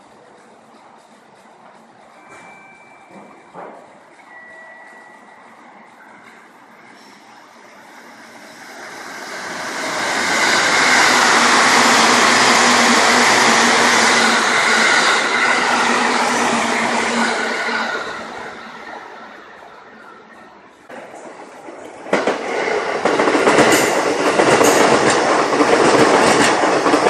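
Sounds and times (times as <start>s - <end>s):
passing train running noise: 0.0s - 27.0s.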